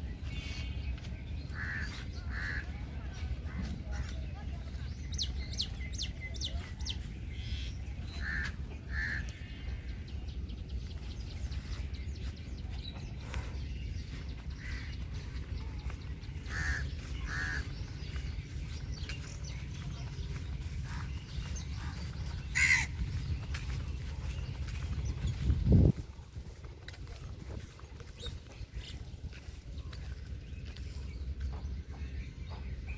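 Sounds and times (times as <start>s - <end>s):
birds with short harsh calls: 0.0s - 32.9s
steady low rumble: 0.0s - 32.9s.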